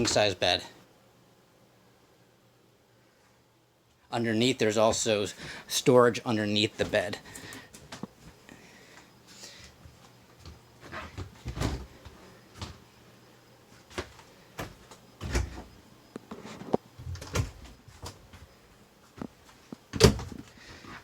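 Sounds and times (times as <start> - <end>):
cabinet doors opening and shutting: 11.1 - 12.0, 14.6 - 15.7, 16.4 - 18.2, 19.9 - 20.5.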